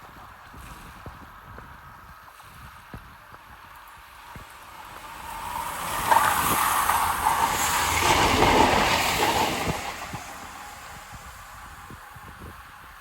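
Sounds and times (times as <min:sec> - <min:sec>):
diesel train passing: 0:03.8 - 0:13.0.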